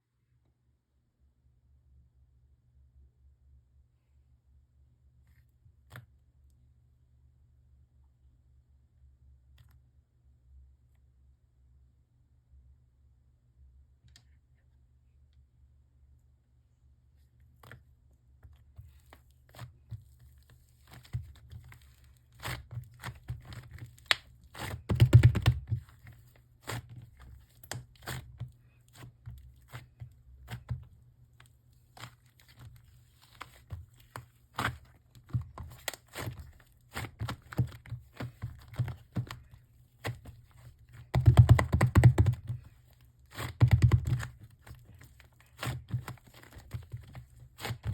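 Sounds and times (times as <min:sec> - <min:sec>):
hands handling clay: 0:17.1 - 0:47.9.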